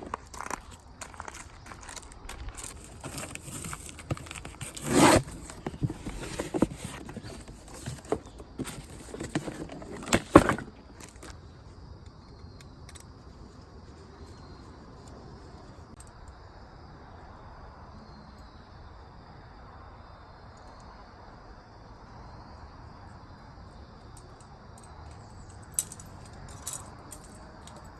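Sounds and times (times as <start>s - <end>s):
objects clicking and knocking: 0.0s - 11.4s
short scraping sounds: 2.6s - 10.7s.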